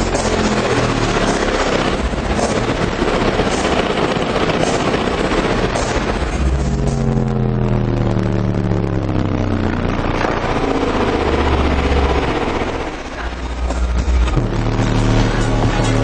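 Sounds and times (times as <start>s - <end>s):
subwoofer playing deep bass notes: 0.0s - 16.0s.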